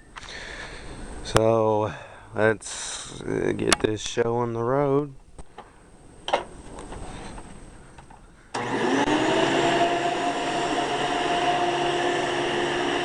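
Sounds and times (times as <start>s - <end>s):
vacuum cleaner motor whine: 8.5s - 13.0s.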